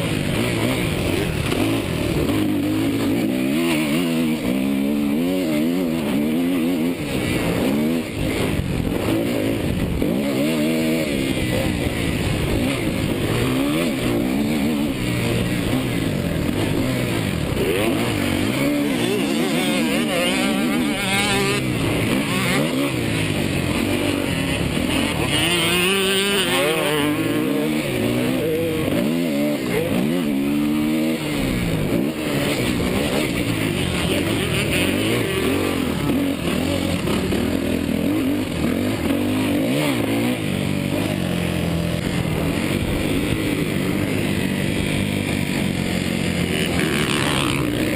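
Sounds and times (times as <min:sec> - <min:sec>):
motorbike engine revving: 0:00.0 - 0:47.9.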